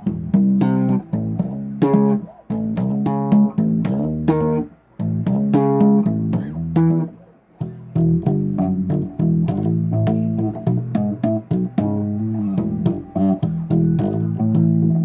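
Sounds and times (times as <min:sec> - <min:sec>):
bass guitar riff: 0:00.0 - 0:15.0.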